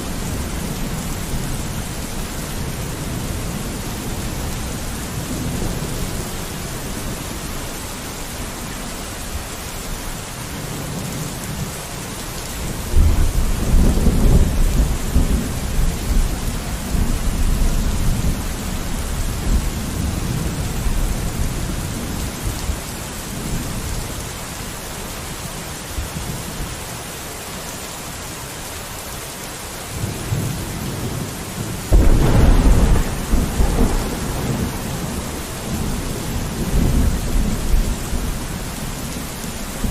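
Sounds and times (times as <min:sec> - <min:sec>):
steady rain: 0:00.0 - 0:39.9
thunder rolling: 0:31.9 - 0:39.2.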